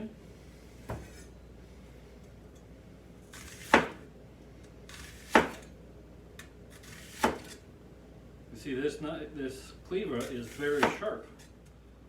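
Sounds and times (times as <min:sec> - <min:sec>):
cleaver chopping onto cutting board: 0:03.4 - 0:04.0, 0:05.1 - 0:05.6, 0:07.1 - 0:07.5, 0:10.7 - 0:11.0.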